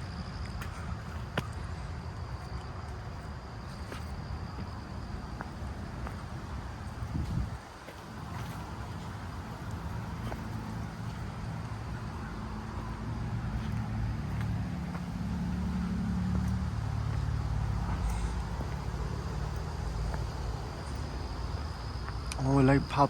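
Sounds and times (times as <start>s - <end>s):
vehicle engine rumble: 0.0s - 23.0s.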